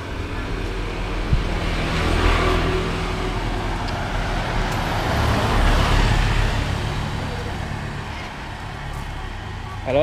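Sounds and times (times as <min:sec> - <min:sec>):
road traffic noise: 0:00.0 - 0:10.0.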